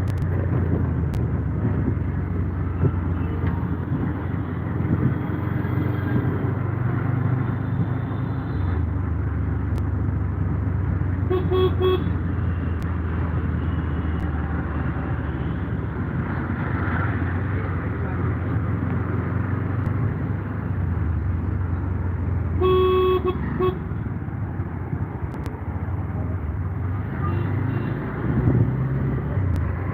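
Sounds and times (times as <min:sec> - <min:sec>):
vehicle running in traffic: 0:00.0 - 0:29.9
vehicle horn honking: 0:11.3 - 0:12.1, 0:22.6 - 0:23.9.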